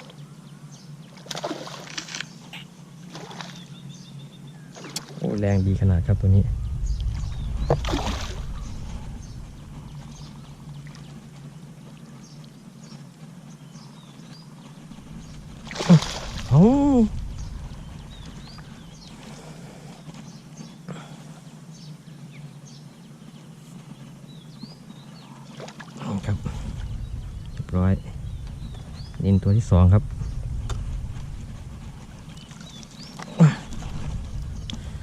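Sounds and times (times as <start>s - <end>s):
fish splashing in water: 1.2s - 2.2s, 3.1s - 3.7s, 7.6s - 8.7s, 15.2s - 19.6s.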